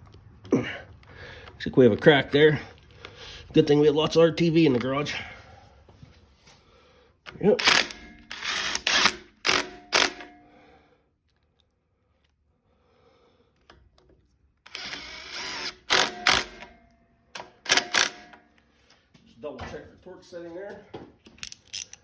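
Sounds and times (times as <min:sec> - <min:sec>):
ratchet wrench turning bolts: 0:07.3 - 0:10.3, 0:14.7 - 0:16.7, 0:17.4 - 0:18.4, 0:21.4 - 0:22.0.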